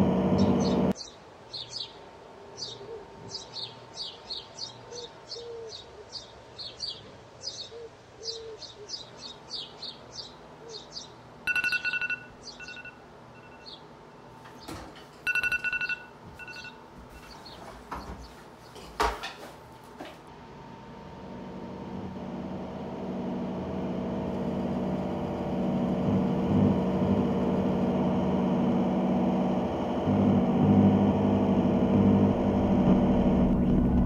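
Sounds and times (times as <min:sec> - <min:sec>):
bird chirping: 0:00.4 - 0:13.9, 0:14.5 - 0:18.8
electronic two-tone ring: 0:11.5 - 0:13.7, 0:15.3 - 0:16.8.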